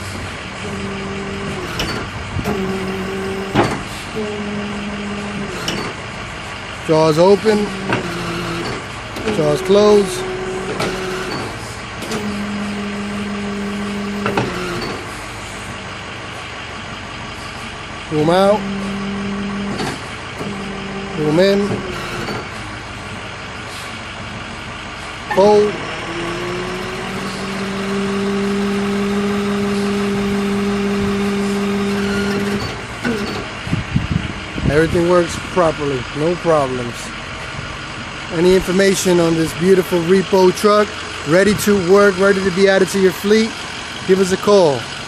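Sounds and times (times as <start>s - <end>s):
hydraulic hum: 0.0s - 45.0s
truck engine idling: 0.0s - 45.0s
metal clunk: 0.7s - 4.2s, 5.3s - 6.1s, 7.4s - 15.3s, 19.6s - 20.6s.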